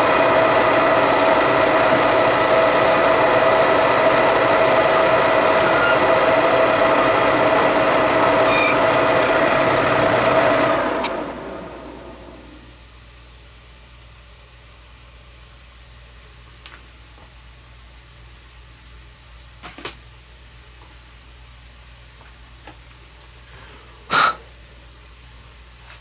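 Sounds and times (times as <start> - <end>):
metal lathe turning: 0.0 - 11.2.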